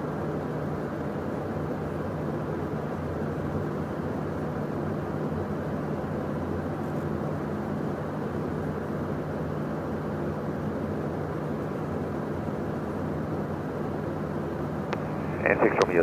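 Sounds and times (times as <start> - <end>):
constant low hum: 0.0 - 16.0
jet cockpit engine drone: 0.0 - 16.0
airflow noise: 15.0 - 16.0.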